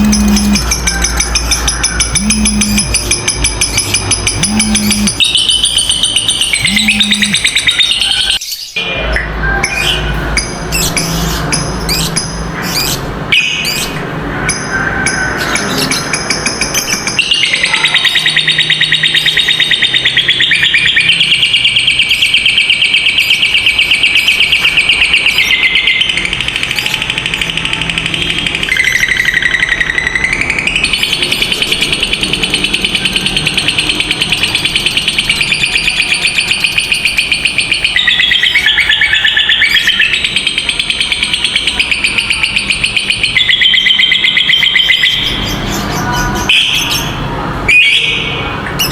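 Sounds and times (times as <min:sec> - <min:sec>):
lovebirds chirping: 0:00.0 - 0:00.7, 0:01.4 - 0:08.8, 0:15.8 - 0:47.1
fast rattling high trill: 0:00.0 - 0:07.8.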